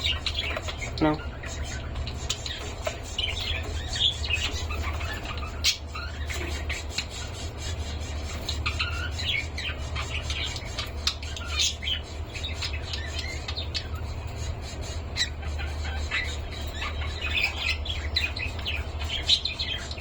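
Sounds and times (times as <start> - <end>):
cockatiels chirping and squawking: 0.0 - 20.0
steady low hum: 0.0 - 20.0.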